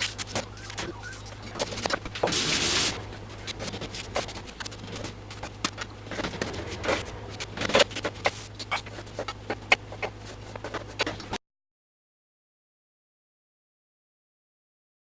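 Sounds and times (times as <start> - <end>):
low electrical hum: 0.0 - 11.4.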